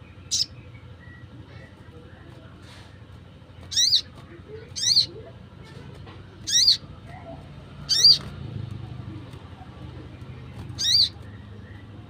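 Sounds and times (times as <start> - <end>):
bird high chirps: 0.0 - 1.6, 3.6 - 5.2, 6.3 - 8.3, 10.3 - 12.0.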